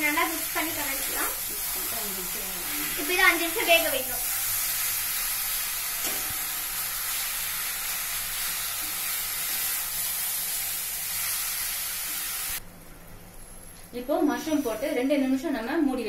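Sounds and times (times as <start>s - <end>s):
mushrooms sizzling in a pan: 0.0s - 12.6s.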